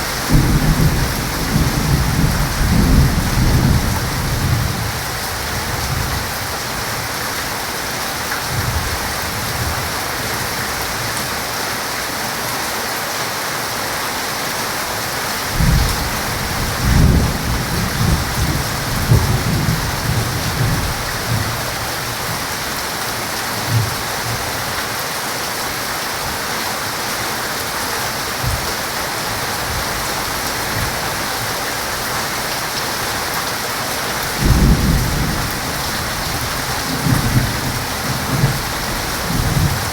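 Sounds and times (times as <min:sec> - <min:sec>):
thunder rumbling: 0:00.0 - 0:06.4, 0:15.5 - 0:22.4, 0:34.3 - 0:39.9
heavy rain falling: 0:00.0 - 0:39.9.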